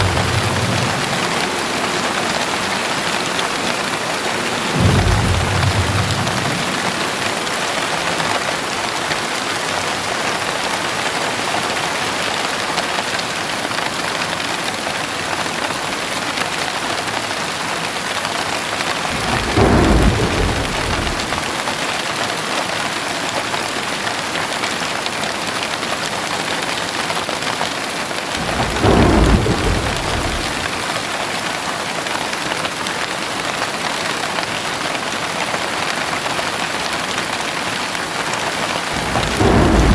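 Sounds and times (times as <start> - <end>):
low rolls of thunder: 0.0 - 8.1, 18.9 - 21.8, 28.3 - 31.2, 38.9 - 39.9
heavy rain falling: 0.0 - 39.9.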